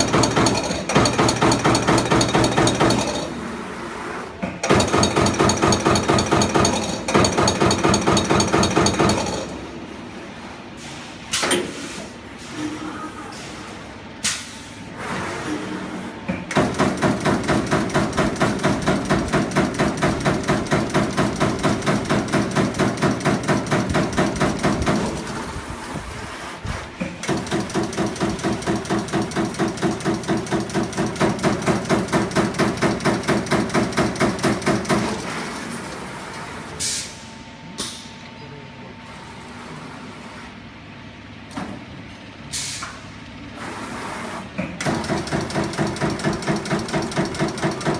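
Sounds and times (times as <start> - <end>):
punching machine strokes: 16.5 - 25.4, 27.2 - 35.4, 44.8 - 47.9.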